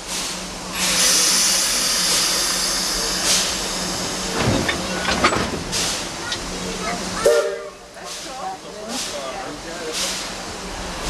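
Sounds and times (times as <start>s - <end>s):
steam hissing: 0.0s - 11.0s
metallic knocks and clanks: 4.4s - 6.4s.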